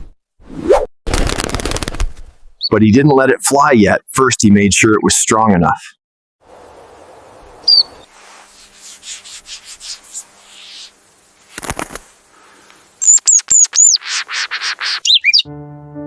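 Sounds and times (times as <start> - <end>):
bird wings fluttering: 1.1 - 2.6, 7.7 - 15.0
high bird chirps: 7.6 - 8.1, 10.4 - 11.0, 13.0 - 15.5.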